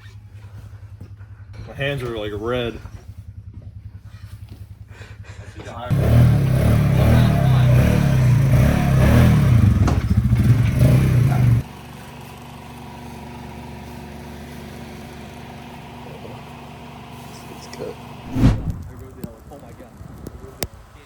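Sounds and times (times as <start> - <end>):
quiet engine hum: 0.0 - 6.0, 11.3 - 21.0
off-road vehicle engine revving: 0.0 - 11.7, 14.2 - 20.6.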